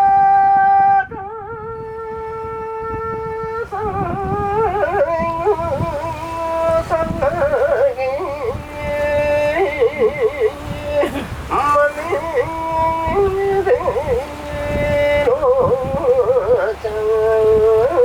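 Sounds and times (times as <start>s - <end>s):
person singing unaccompanied: 0.0s - 18.0s
wind and boat rumble: 0.0s - 18.0s.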